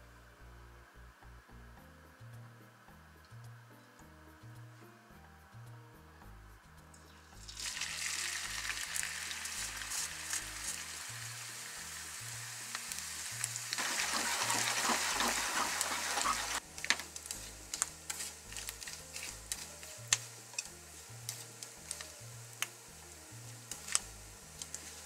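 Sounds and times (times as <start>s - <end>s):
fish sizzling in frying oil: 7.3s - 25.0s.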